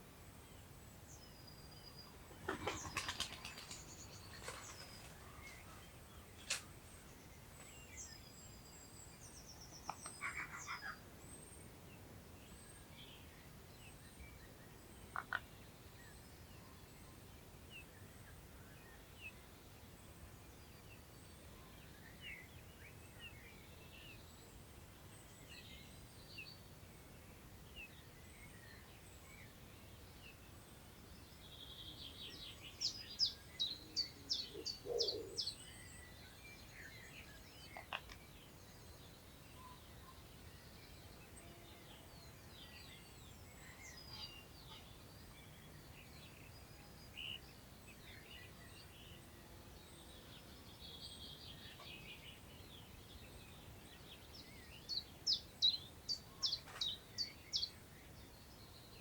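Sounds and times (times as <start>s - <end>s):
faint birdsong: 0.0s - 59.0s
small birds chirping and trilling: 31.5s - 59.0s.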